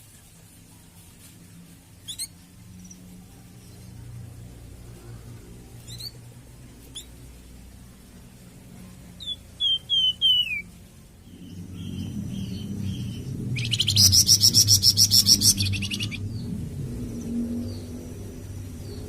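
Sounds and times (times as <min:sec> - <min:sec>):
low steady hum: 0:00.0 - 0:19.0
songbird chirping and whistling: 0:02.0 - 0:02.4, 0:06.9 - 0:07.1, 0:09.2 - 0:16.5.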